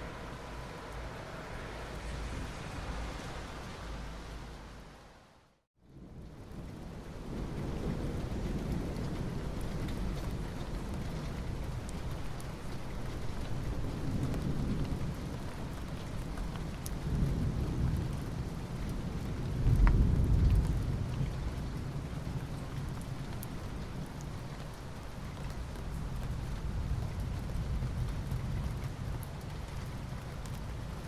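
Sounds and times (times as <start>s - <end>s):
rain falling on asphalt: 0.0s - 31.0s.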